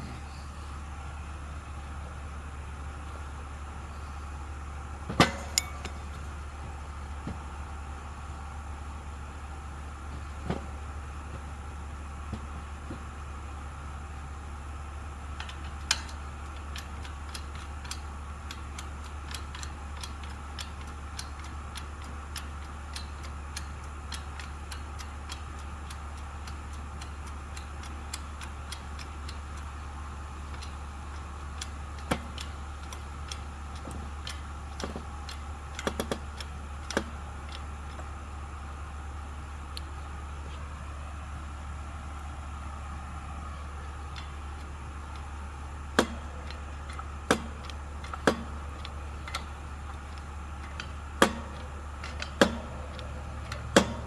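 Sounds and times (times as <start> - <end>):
steady low hum: 0.0 - 54.0
small clicks and ticks: 15.4 - 38.2
wood snapping: 44.0 - 54.0.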